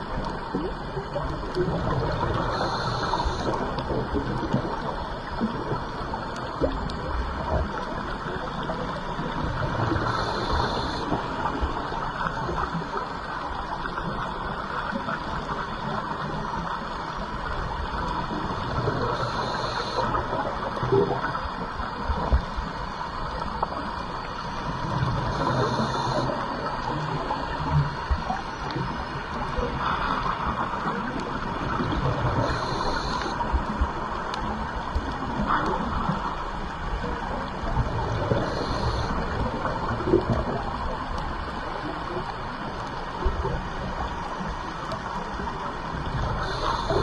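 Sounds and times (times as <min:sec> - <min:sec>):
underwater bubbles gurgling: 0:00.0 - 0:47.0
regulator hissing: 0:02.5 - 0:03.6.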